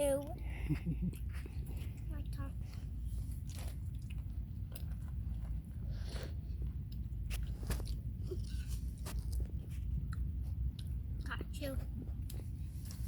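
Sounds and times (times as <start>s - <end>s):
steady low rumble: 0.0s - 13.0s
person chewing candy: 2.7s - 11.3s.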